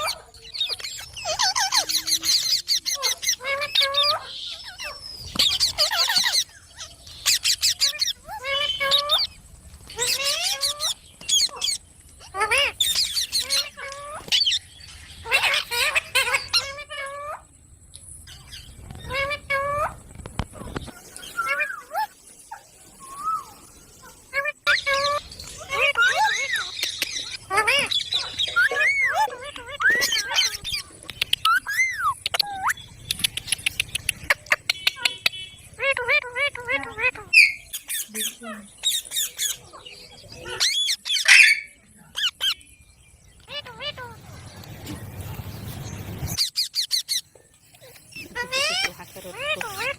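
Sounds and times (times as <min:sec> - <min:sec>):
parrot squawking calls: 0:00.0 - 0:09.4, 0:10.0 - 0:17.5, 0:23.0 - 0:33.4, 0:34.2 - 0:42.6, 0:46.3 - 0:49.9.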